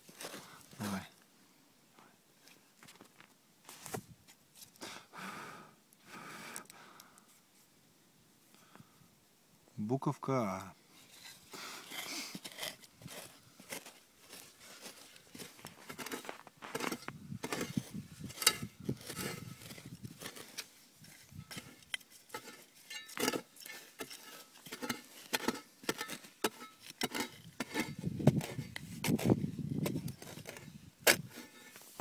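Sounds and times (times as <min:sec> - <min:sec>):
small objects scraping and clicking: 0:11.0 - 0:32.0.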